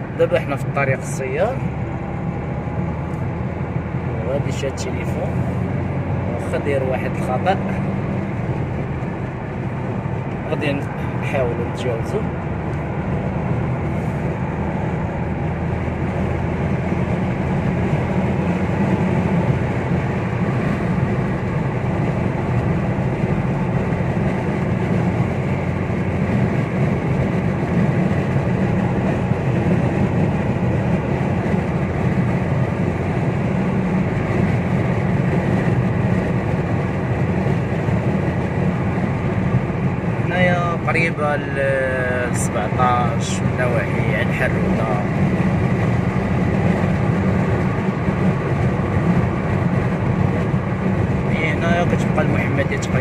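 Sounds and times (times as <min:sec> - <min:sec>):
car road and engine noise: 0:00.0 - 0:53.0.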